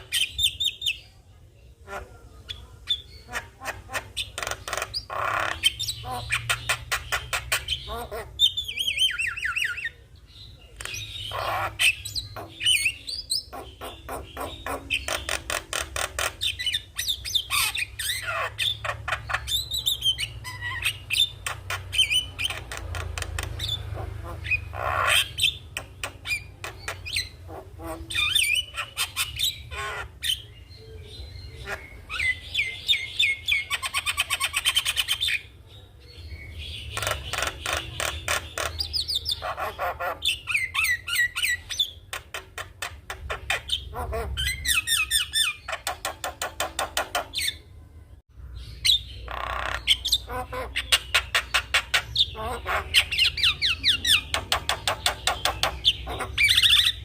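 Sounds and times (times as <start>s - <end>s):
bird singing with chatter and squawks: 0.0s - 57.0s.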